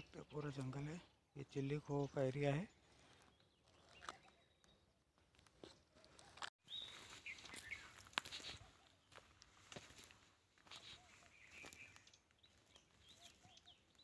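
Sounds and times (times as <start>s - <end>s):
footsteps on dry leaves: 5.3s - 14.0s
short bird chirps: 6.6s - 8.8s.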